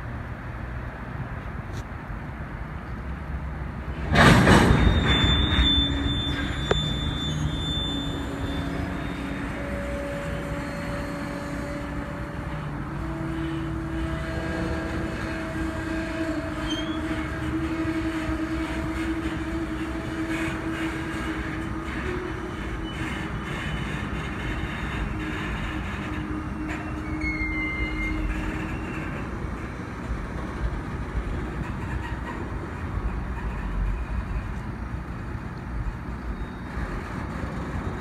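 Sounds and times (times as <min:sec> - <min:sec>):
train wheels rumbling on rail: 0:00.0 - 0:38.0
high-pitched wheel squeal: 0:04.5 - 0:29.4, 0:36.2 - 0:37.2.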